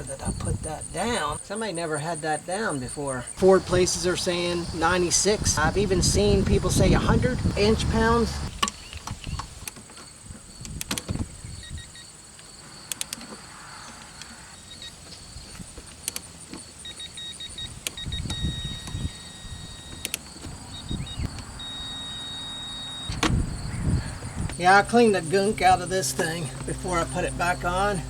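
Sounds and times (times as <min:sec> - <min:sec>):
torque wrench beeps: 0:16.8 - 0:23.2.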